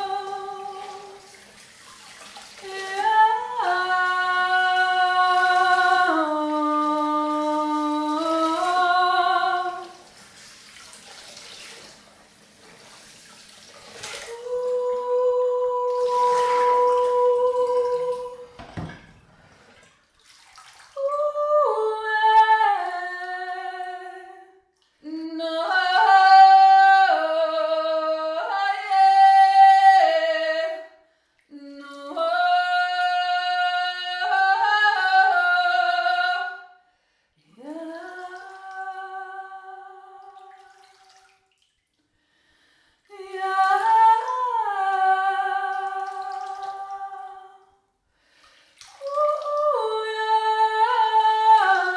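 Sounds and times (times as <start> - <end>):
woman singing wordless phrases: 0.0 - 1.4, 2.6 - 10.0, 14.3 - 18.9, 21.0 - 36.8, 37.6 - 40.7, 43.1 - 47.8, 49.0 - 51.9.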